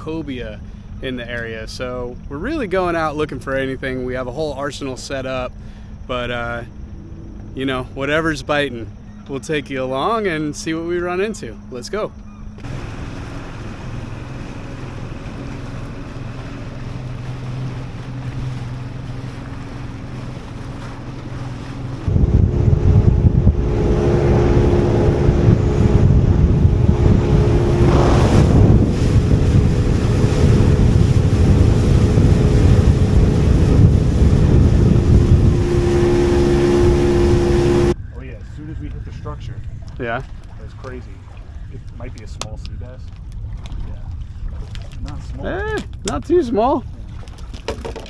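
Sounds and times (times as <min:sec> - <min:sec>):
motorboat engine running: 0:00.0 - 0:38.0
water noise: 0:02.2 - 0:38.0, 0:38.8 - 0:48.0
wind buffeting microphone: 0:12.5 - 0:47.5.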